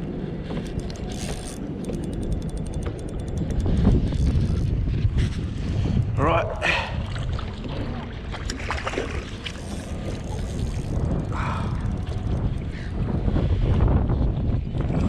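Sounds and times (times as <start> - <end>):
wind buffeting microphone: 0.0 - 15.0
water splashing at kayak: 6.5 - 11.0.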